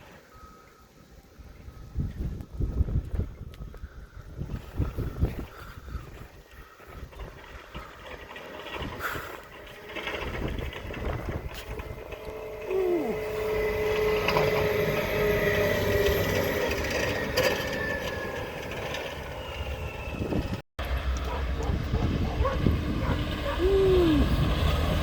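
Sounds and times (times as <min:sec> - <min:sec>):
vehicle engine running: 0:06.6 - 0:25.0.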